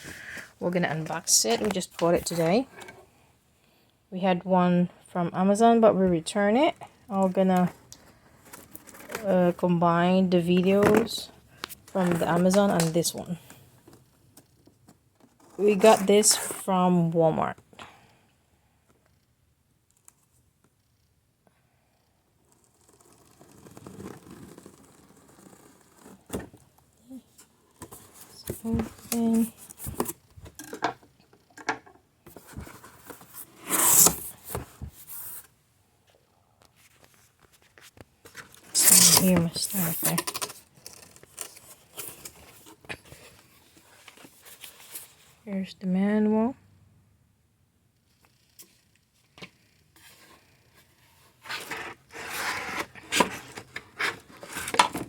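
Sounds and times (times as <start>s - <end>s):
cardboard rubbing and scraping: 22.5s - 26.5s, 32.4s - 35.4s, 51.3s - 55.0s.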